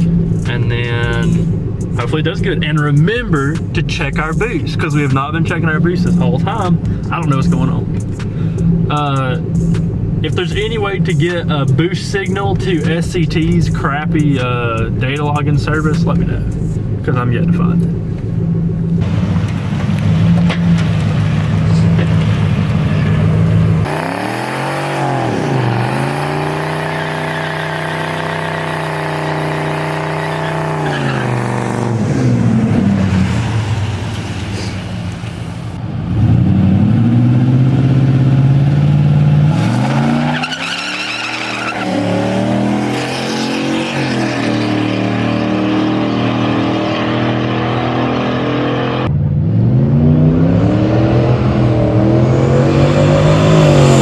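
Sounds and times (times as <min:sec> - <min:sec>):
drag car engine revving: 0:00.0 - 0:54.0
tyre squeal: 0:25.0 - 0:31.9, 0:39.6 - 0:45.8.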